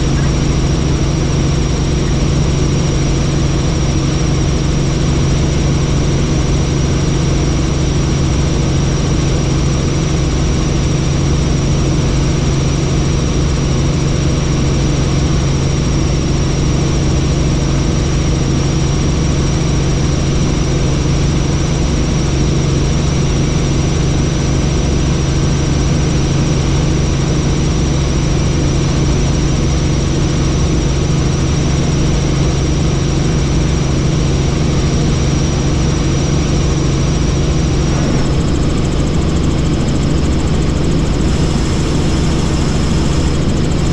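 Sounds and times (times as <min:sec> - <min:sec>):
helicopter engine and rotors: 0:00.0 - 0:43.9
high thin whine: 0:37.6 - 0:43.9.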